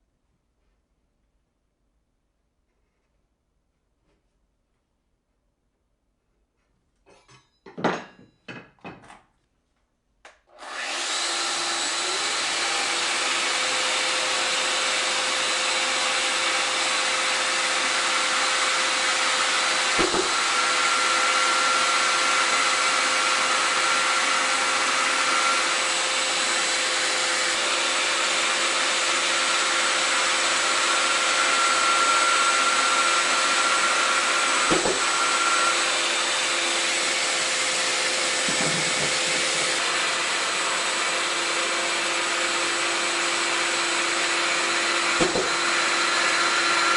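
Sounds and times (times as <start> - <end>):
power tool running with whine: 10.5 - 46.9.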